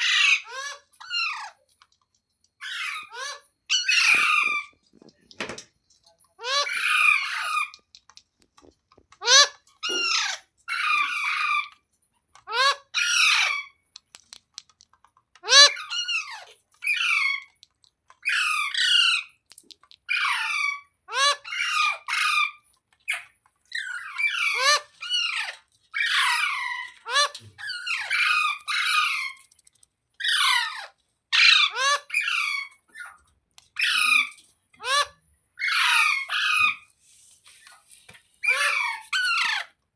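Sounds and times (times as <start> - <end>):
parrot squawking: 0.0 - 1.5, 2.6 - 4.7, 6.4 - 7.8, 9.2 - 11.7, 12.4 - 13.8, 15.4 - 17.6, 18.2 - 19.3, 20.0 - 29.4, 30.2 - 33.2, 33.8 - 36.8, 38.4 - 39.8.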